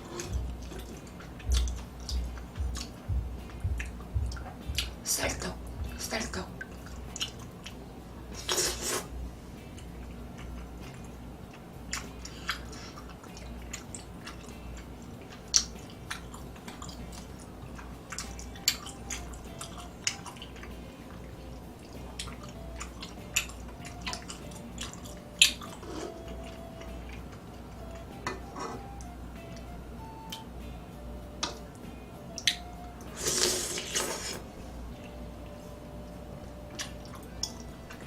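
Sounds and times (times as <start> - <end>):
person chewing rice cakes: 0.0 - 5.0, 10.3 - 20.7, 21.8 - 28.0
low steady hum: 0.0 - 38.0.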